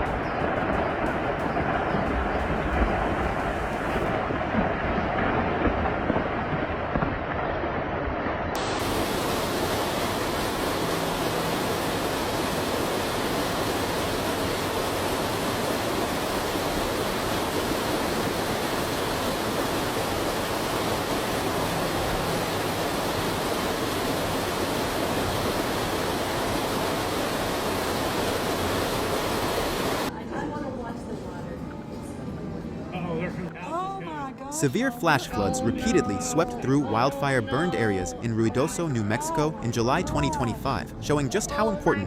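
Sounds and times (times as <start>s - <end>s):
fast-moving water rushing: 0.0s - 30.1s.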